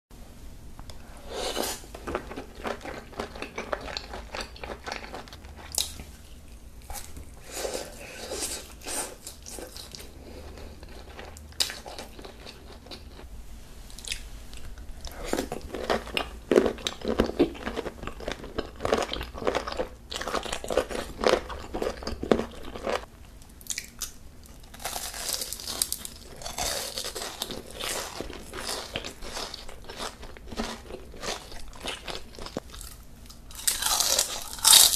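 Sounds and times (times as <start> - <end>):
biting and chewing seafood: 14.0 - 34.9.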